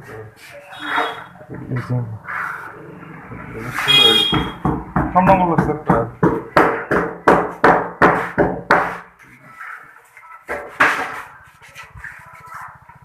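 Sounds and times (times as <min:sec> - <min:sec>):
hammer striking nails: 0:04.3 - 0:09.0.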